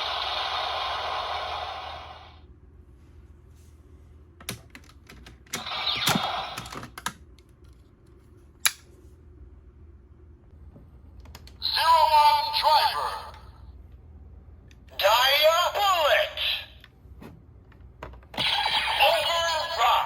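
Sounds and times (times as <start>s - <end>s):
toy electronic sound effect: 18.4s - 20.0s.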